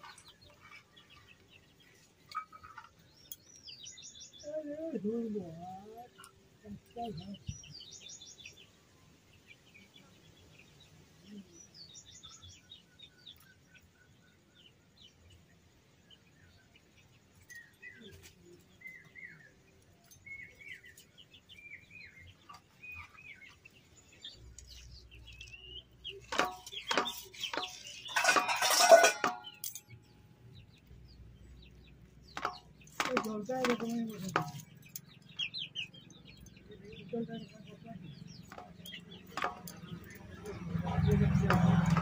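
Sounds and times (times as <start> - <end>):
small birds chirping: 0.0 - 42.0
sharp knocks: 26.3 - 29.6, 32.3 - 34.7, 38.4 - 39.9.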